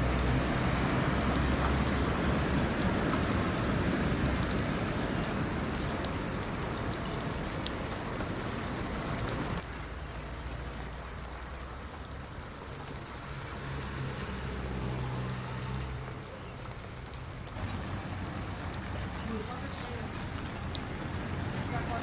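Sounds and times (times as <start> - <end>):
rain falling: 0.0 - 22.0
raindrops ticking: 0.0 - 22.0.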